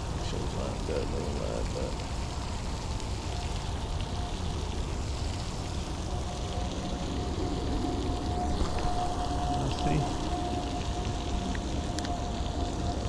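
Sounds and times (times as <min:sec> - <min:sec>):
light rain: 0:00.0 - 0:13.0
wind noise: 0:02.6 - 0:13.0
faint thin steady tone: 0:02.8 - 0:12.8.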